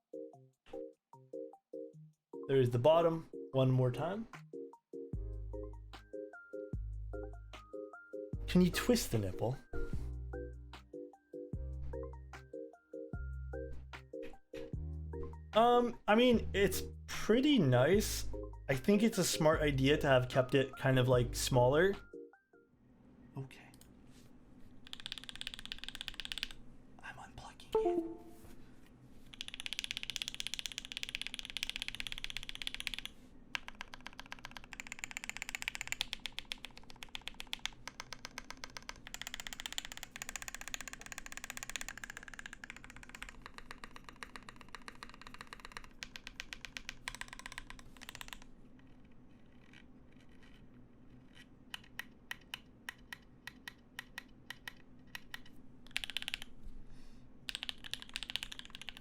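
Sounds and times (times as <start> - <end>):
mechanical keyboard typing: 24.8 - 26.6, 29.3 - 56.6, 57.5 - 59.0.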